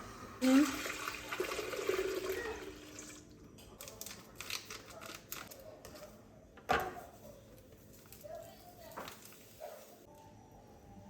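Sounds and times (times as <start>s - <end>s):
water running from a tap: 0.4s - 3.3s.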